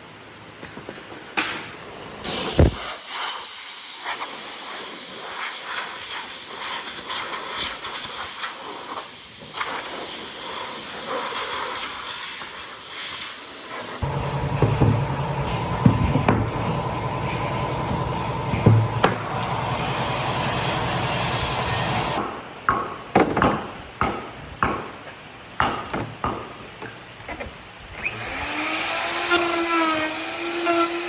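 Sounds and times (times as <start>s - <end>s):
loud steady hiss: 2.2s - 14.2s, 18.6s - 22.2s.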